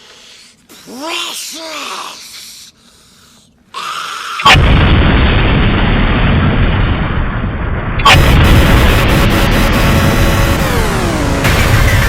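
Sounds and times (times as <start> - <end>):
explosion blast: 4.5 - 12.0
continuous loud noise: 8.0 - 12.0.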